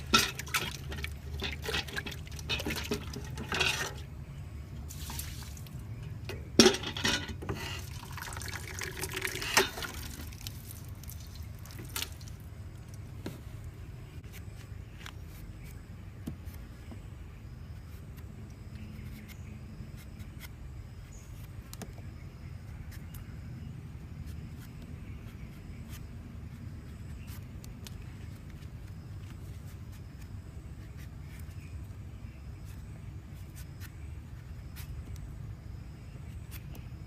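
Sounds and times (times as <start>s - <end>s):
drips: 0.0s - 4.0s, 6.6s - 12.9s.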